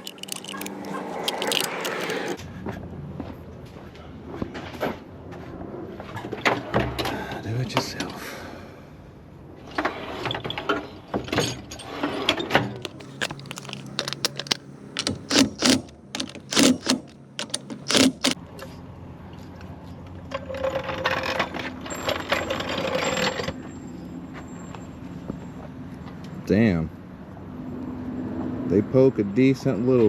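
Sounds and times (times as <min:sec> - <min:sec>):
metallic clicks and ratcheting: 0:00.0 - 0:02.4, 0:12.8 - 0:18.4
mechanical whir: 0:12.8 - 0:18.4.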